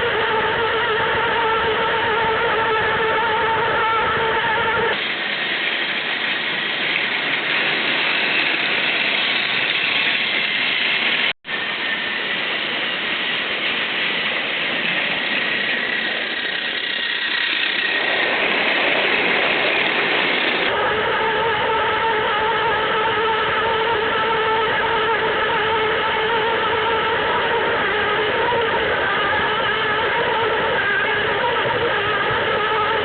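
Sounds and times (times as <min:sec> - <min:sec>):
toy train whirring: 0:04.9 - 0:20.7.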